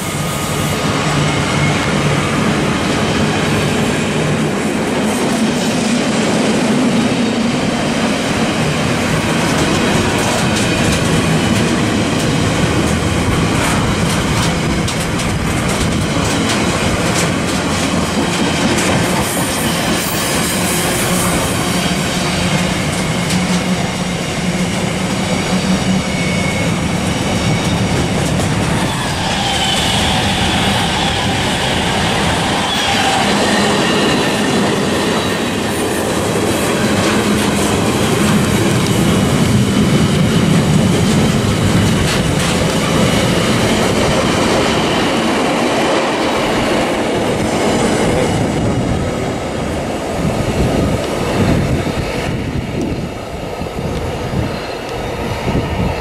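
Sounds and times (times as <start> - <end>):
freight train wheels rumbling: 0.0 - 56.0
high ringing wheel squeal: 24.6 - 34.5.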